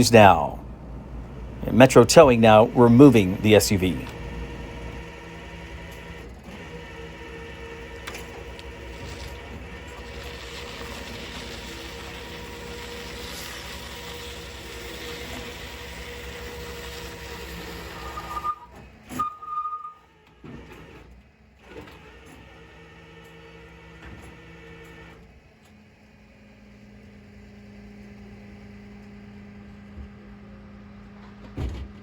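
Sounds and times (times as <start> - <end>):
truck engine running: 0.0 - 20.5, 22.2 - 32.0
short high beeps: 18.2 - 20.0.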